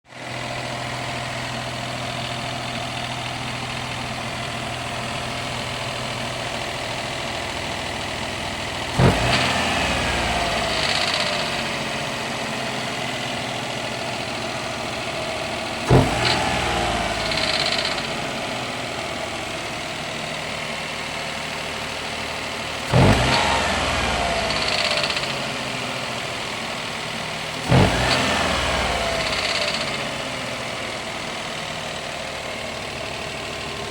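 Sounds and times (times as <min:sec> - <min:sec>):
engine clatter: 0:00.1 - 0:33.9
car engine revving: 0:07.6 - 0:21.0, 0:21.7 - 0:33.9.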